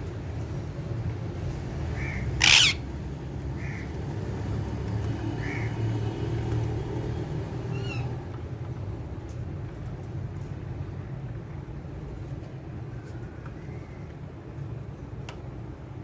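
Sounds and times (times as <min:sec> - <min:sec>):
parakeet calls and chirps: 0:02.0 - 0:02.9, 0:07.6 - 0:08.2
parakeet screeching: 0:02.0 - 0:02.9, 0:07.7 - 0:08.2.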